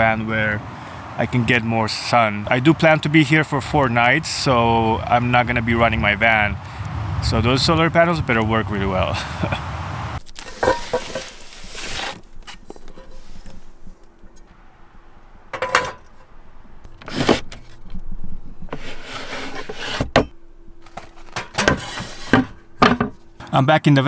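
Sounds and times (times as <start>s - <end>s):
faint steady hum: 0.0s - 11.3s.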